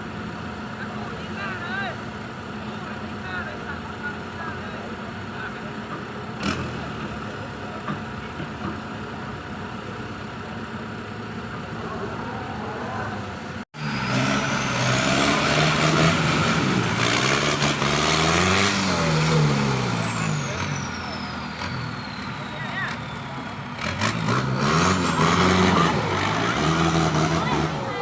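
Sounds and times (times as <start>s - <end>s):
off-road engine running: 0.0s - 28.0s
engine revving: 6.4s - 7.4s, 11.6s - 28.0s.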